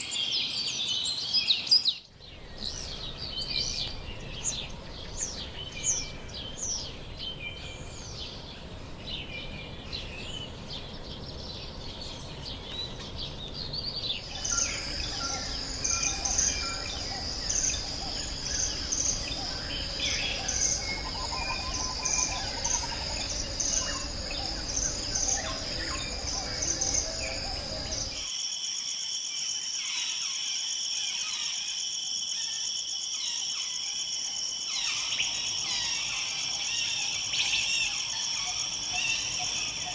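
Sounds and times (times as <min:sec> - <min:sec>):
birds calling: 0:00.0 - 0:28.3
high insect chorus: 0:00.0 - 0:39.9
two-tone insect chorus: 0:00.0 - 0:39.9.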